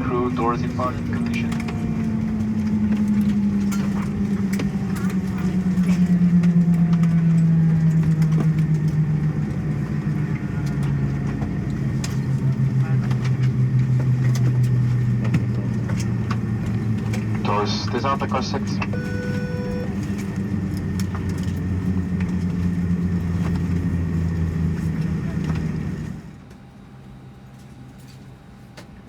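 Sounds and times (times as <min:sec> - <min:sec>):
jet engines spooling down: 0:00.0 - 0:26.3.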